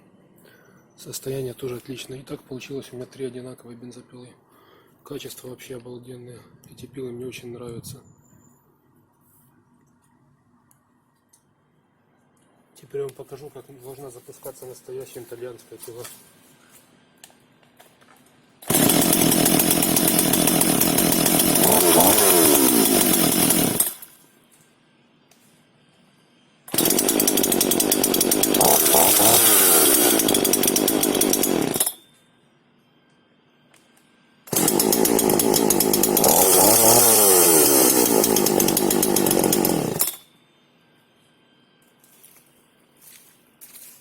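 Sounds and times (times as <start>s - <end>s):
chainsaw running: 18.6s - 24.1s, 26.7s - 32.0s, 34.5s - 40.2s.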